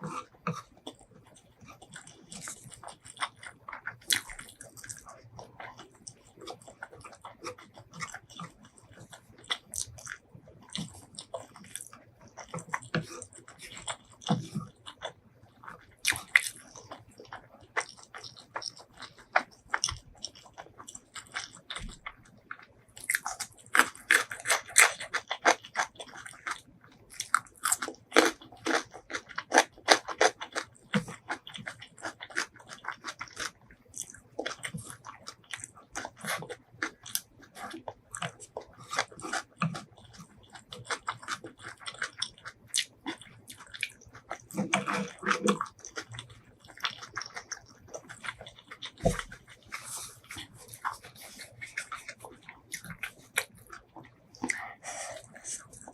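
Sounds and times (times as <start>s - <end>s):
person chewing crunchy food: 0.0s - 55.9s.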